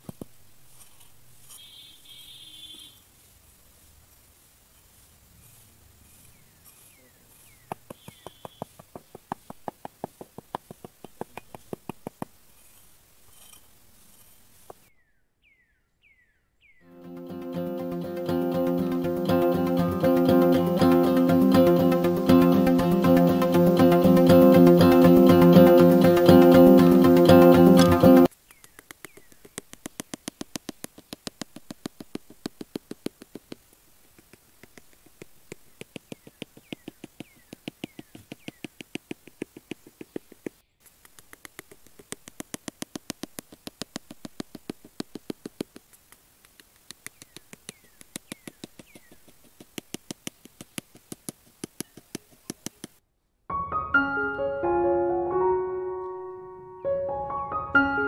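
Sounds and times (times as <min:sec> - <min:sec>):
piano music: 0:16.9 - 0:28.3, 0:53.5 - 0:58.0
rapid light clicks: 0:27.8 - 0:53.0.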